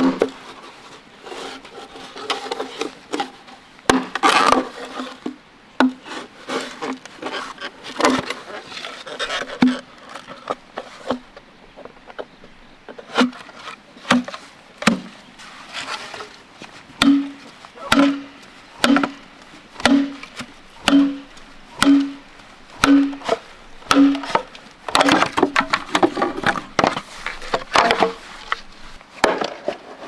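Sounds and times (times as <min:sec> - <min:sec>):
wood scraping and rubbing: 0:00.0 - 0:05.3, 0:13.0 - 0:30.0
wood knocks: 0:17.0 - 0:29.6.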